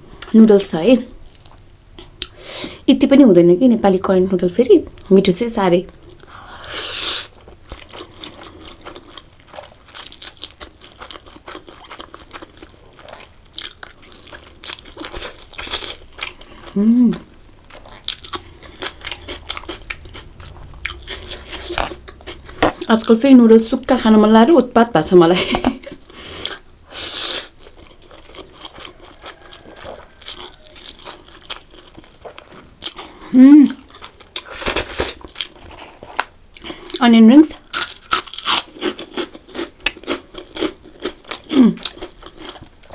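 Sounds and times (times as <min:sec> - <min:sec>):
wet chewing and mouth clicks: 0:07.3 - 0:23.0, 0:27.4 - 0:36.7.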